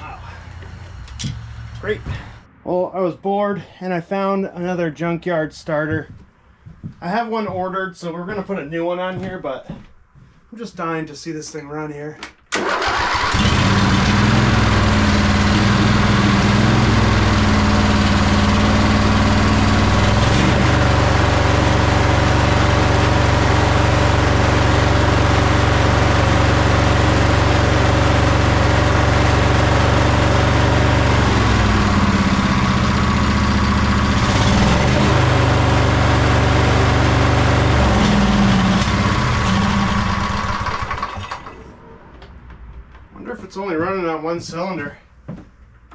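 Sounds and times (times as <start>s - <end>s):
lawn tractor engine misfiring: 12.5s - 41.7s.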